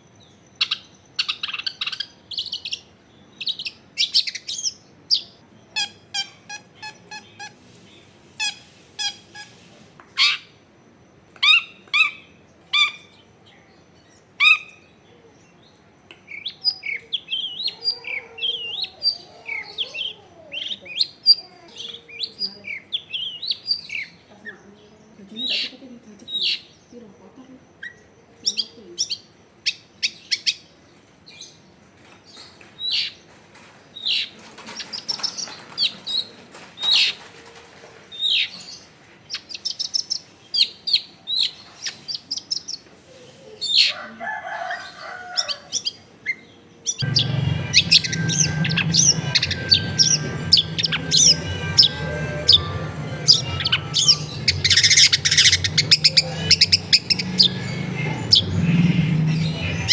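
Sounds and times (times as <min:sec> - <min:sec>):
steady low hum: 0:47.0 - 0:59.9.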